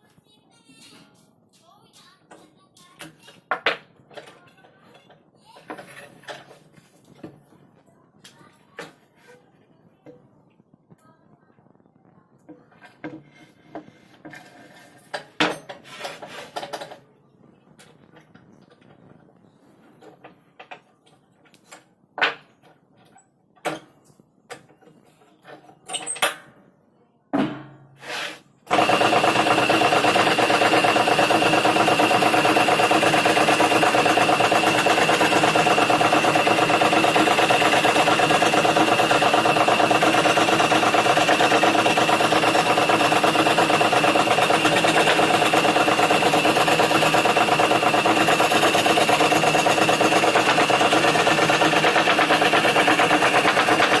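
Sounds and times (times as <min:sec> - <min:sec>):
electric scroll saw whining: 0:28.7 - 0:54.0.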